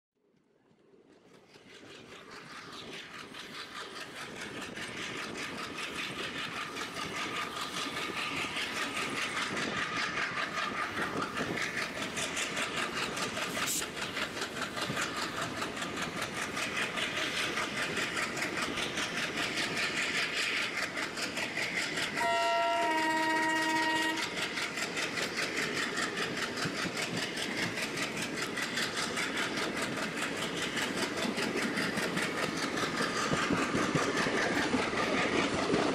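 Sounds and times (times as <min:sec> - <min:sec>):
train wheels clattering over rails: 0:01.2 - 0:35.9
locomotive horn: 0:22.2 - 0:24.3.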